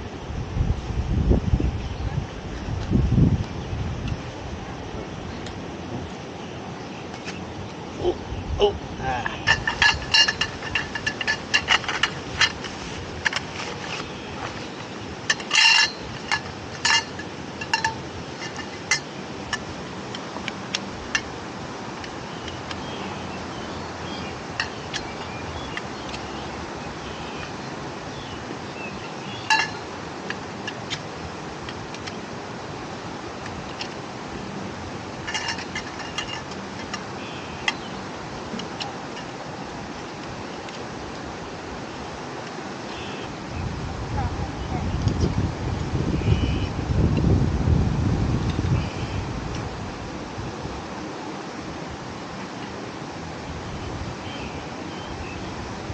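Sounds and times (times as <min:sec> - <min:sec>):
steady rushing noise: 0:00.0 - 0:55.9
clinks of camp tableware: 0:09.2 - 0:14.6, 0:15.3 - 0:21.3, 0:24.6 - 0:26.2, 0:29.3 - 0:31.0, 0:35.2 - 0:37.9
kitchenware rattle: 0:09.4 - 0:13.4
kitchenware clinking: 0:09.5 - 0:12.6, 0:29.5 - 0:29.8.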